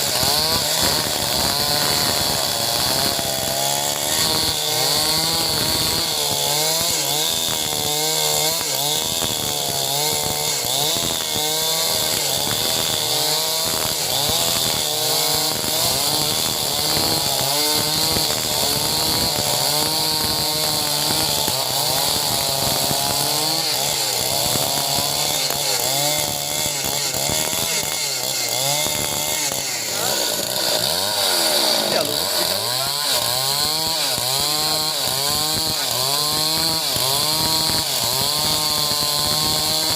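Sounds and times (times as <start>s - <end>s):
chainsaw cutting timber: 0.0s - 39.9s.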